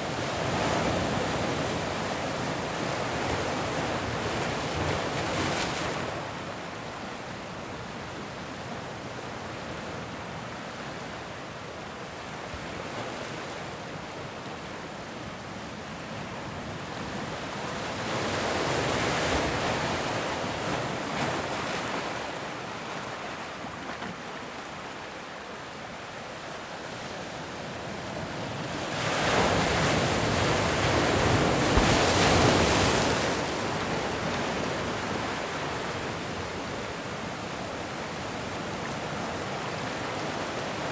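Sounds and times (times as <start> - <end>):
ocean waves breaking: 28.4 - 40.9.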